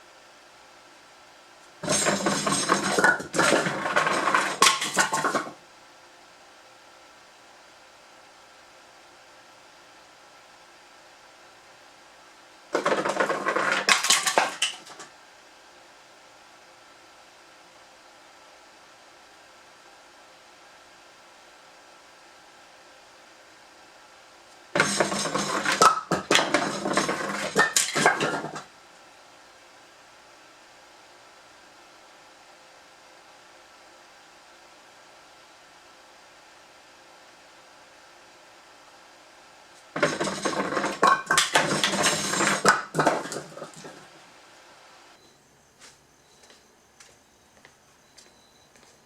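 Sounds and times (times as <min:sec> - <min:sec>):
firewood clattering down a pipe: 0:01.8 - 0:05.6, 0:12.8 - 0:15.1, 0:24.8 - 0:28.7, 0:40.0 - 0:44.2.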